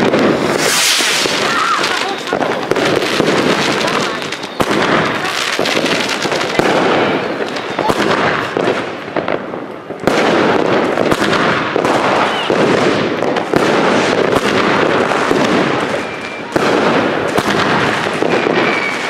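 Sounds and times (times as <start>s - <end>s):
crackle and hiss of firecrackers: 0.0s - 19.0s
firework bangs: 0.0s - 19.0s.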